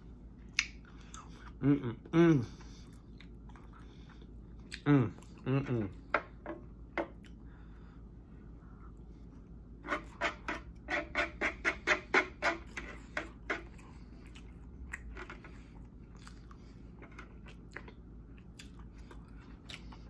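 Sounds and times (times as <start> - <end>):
wet chewing and mouth smacks: 0.5 - 1.6, 2.8 - 5.4, 13.6 - 16.7, 17.3 - 20.0.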